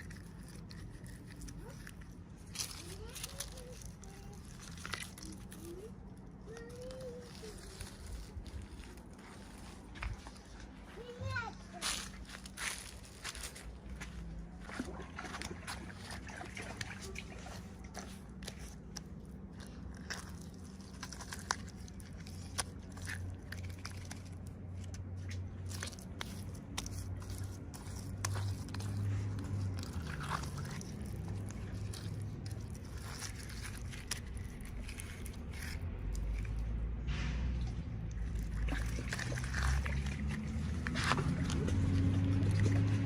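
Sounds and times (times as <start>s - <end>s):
plastic and paper crinkling: 0.0s - 37.1s, 37.8s - 43.0s
low steady hum: 0.0s - 43.0s.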